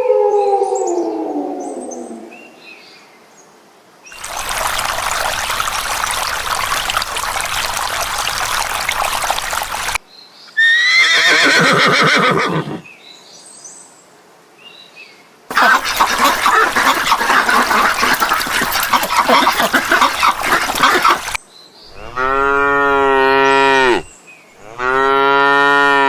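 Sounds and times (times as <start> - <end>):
horse whinnying: 10.6 - 12.8.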